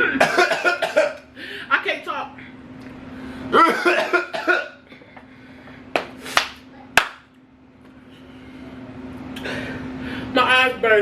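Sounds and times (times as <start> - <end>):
person coughing and spluttering: 0.0 - 1.2, 3.6 - 4.8.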